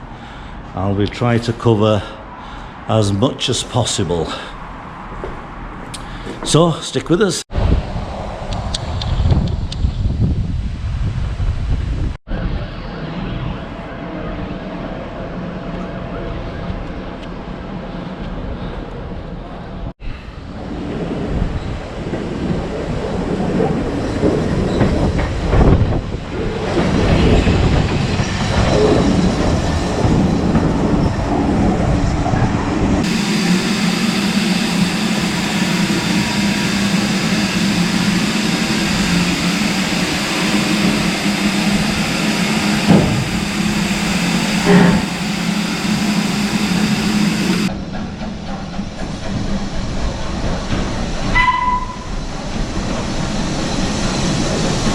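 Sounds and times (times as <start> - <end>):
steam train rumbling: 7.5 - 54.9
knocks: 42.9 - 43.4.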